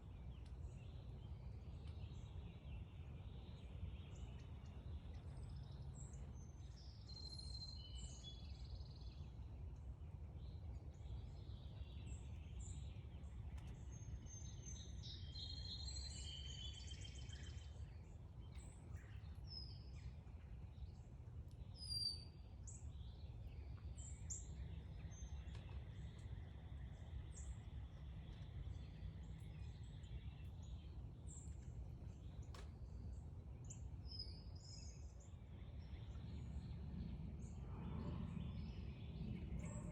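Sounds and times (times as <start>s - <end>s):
songbirds chirping: 0.0s - 39.9s
warbled bird song: 0.0s - 39.9s
low rumble: 34.4s - 39.9s.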